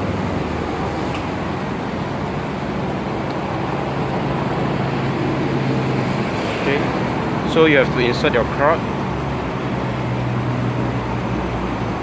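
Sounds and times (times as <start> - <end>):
low engine hum: 0.0 - 12.0
traffic noise: 0.0 - 12.0.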